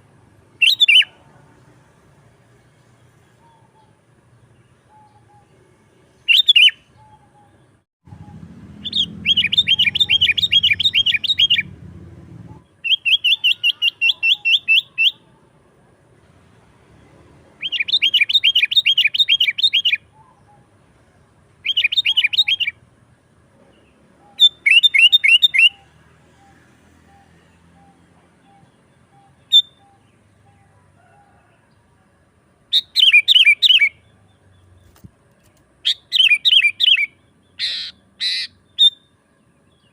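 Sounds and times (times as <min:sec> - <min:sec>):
bird chattering song: 0:00.6 - 0:01.2, 0:03.0 - 0:11.8, 0:12.5 - 0:15.4, 0:17.6 - 0:20.8, 0:21.6 - 0:22.8, 0:23.6 - 0:30.8, 0:32.7 - 0:39.9.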